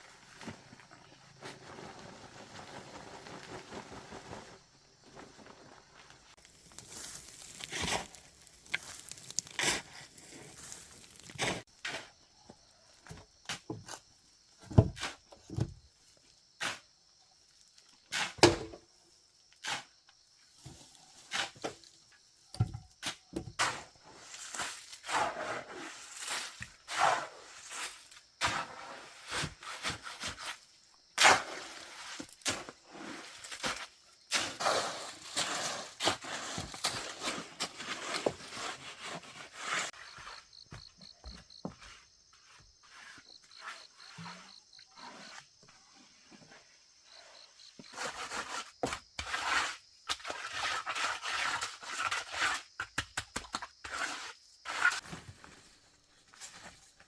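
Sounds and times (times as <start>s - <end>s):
knocks thuds and scraping: 14.6s - 15.9s, 18.2s - 18.9s, 22.5s - 23.9s.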